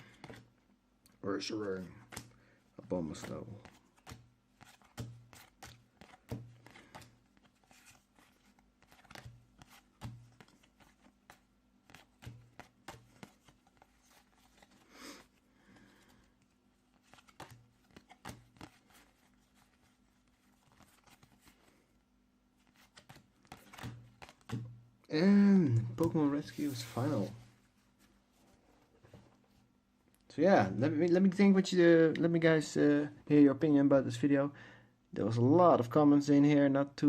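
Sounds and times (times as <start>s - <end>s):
trading cards being flipped: 3.1s - 15.4s, 16.9s - 21.8s, 22.6s - 24.7s.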